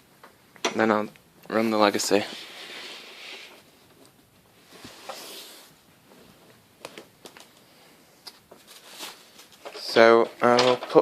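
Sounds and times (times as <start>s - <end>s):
handling rustle: 8.3s - 10.2s.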